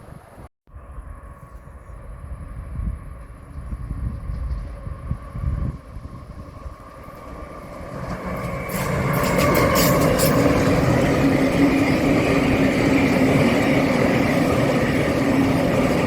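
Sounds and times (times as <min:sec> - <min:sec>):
train approaching: 0:00.0 - 0:16.0
wind rumbling on microphone: 0:00.0 - 0:16.0
wheels clattering on rails: 0:06.6 - 0:16.0.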